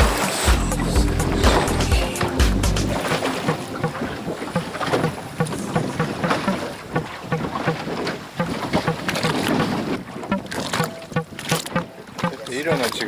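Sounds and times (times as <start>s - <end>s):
water splashing against boat: 0.0s - 13.0s
wind buffeting microphone: 2.9s - 11.5s.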